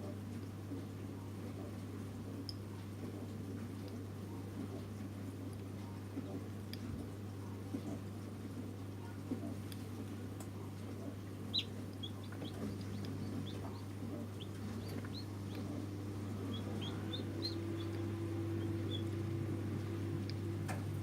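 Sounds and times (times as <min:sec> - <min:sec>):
steady low hum: 0:00.0 - 0:21.0
chicks peeping: 0:10.9 - 0:20.0.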